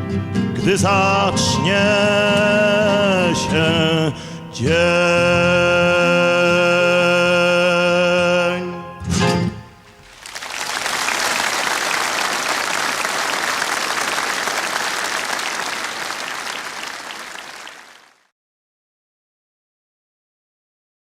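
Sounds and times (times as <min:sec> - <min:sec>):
audience applauding: 0:10.0 - 0:18.2.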